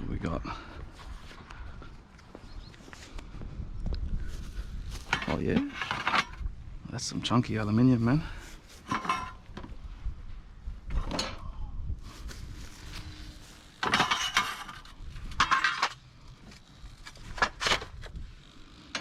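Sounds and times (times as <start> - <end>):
scrap metal clattering and scraping: 4.9 - 6.5, 8.6 - 9.6, 12.8 - 16.0.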